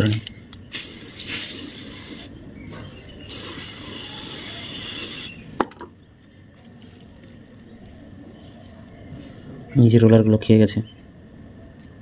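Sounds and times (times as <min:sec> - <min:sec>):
aerosol can spraying: 0:00.7 - 0:02.3, 0:03.3 - 0:05.4.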